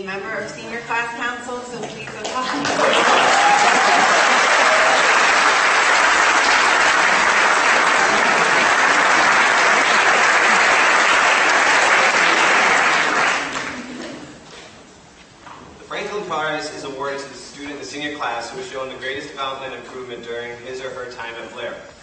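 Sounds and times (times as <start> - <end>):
audience applauding: 2.2 - 14.0.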